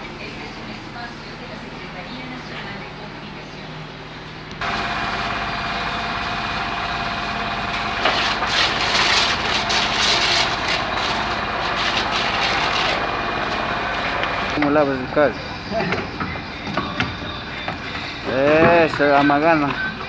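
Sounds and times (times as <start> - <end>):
water spray hissing: 4.6 - 14.6
washer motor humming: 4.6 - 20.0.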